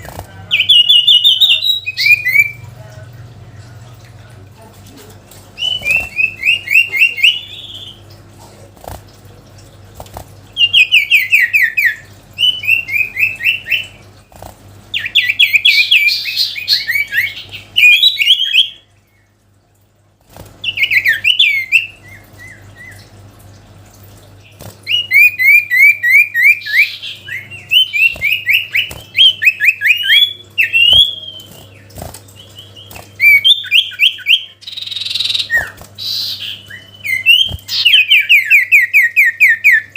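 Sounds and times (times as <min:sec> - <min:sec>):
bird singing chattering song: 0:00.0 - 0:02.7, 0:05.6 - 0:08.0, 0:10.6 - 0:14.0, 0:14.9 - 0:19.3, 0:24.9 - 0:39.9.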